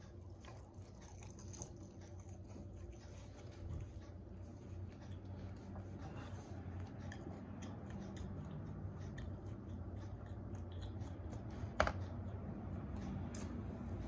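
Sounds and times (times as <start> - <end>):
low steady hum: 0.0 - 14.0
chewing and mouth smacks: 0.1 - 4.2, 6.6 - 11.7.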